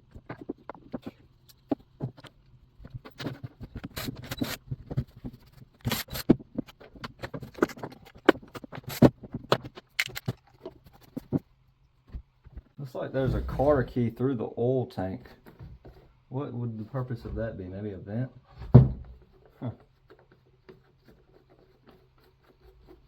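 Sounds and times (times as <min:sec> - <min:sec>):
tools clicking and scraping parts: 0:00.1 - 0:11.4.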